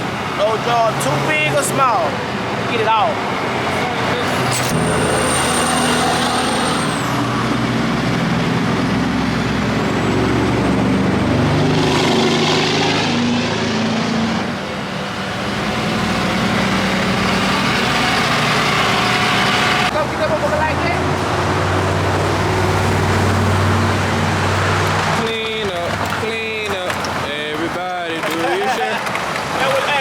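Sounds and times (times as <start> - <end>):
road noise: 0.0 - 30.0
truck engine running: 14.4 - 27.8.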